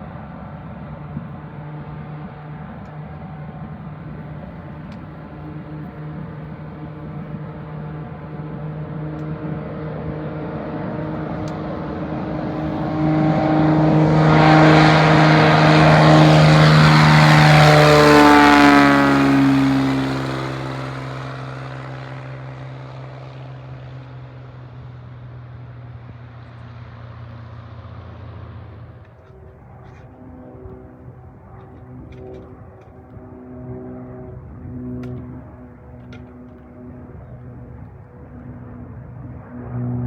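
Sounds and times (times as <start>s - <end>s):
propeller airplane passing: 0.0s - 40.0s.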